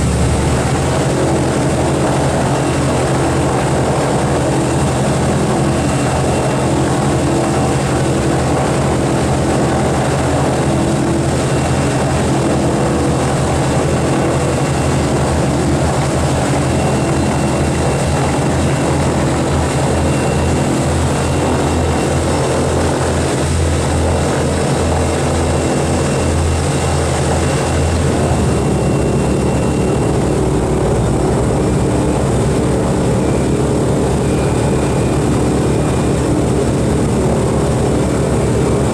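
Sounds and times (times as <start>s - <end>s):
propeller engines droning: 0.0s - 38.9s.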